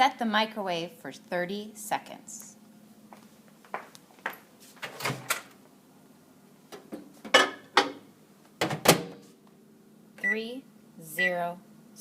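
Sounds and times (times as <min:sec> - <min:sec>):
microwave door knocks and clicks: 0:08.6 - 0:09.2.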